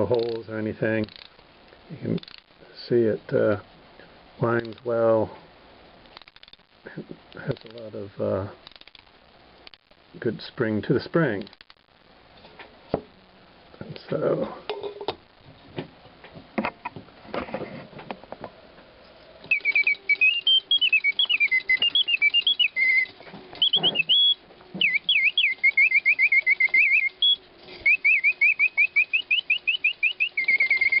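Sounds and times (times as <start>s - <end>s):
faint steady hum: 0.0s - 31.0s
mechanical bird whistling birdsong: 19.2s - 31.0s.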